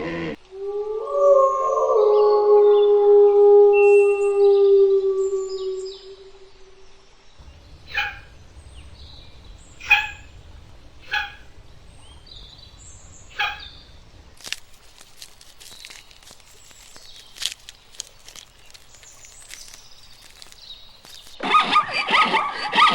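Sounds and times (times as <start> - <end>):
animal harsh calls: 7.4 - 14.4
faint high bird chirps: 7.4 - 14.4
rustling: 7.4 - 21.4.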